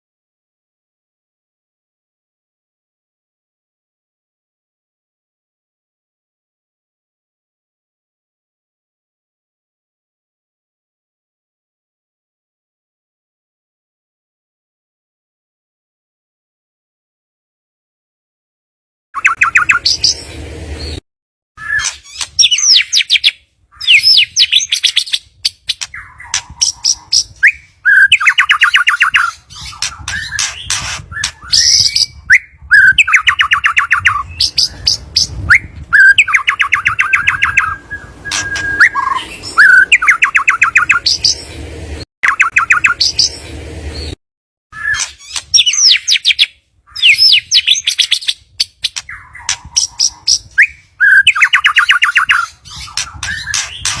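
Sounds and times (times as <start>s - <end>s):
bird song with rattling chatter: 19.2s - 21.0s, 21.6s - 44.2s, 44.8s - 54.0s
whistled sweeps: 35.5s - 41.1s.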